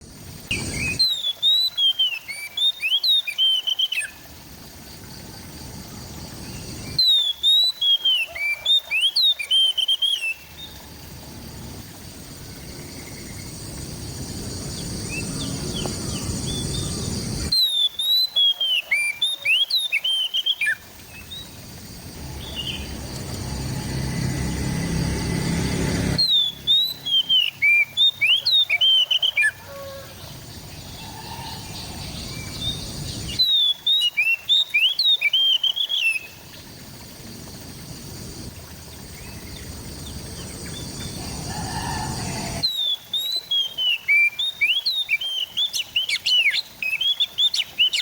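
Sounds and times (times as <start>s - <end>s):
rushing hiss: 40.6s - 42.7s.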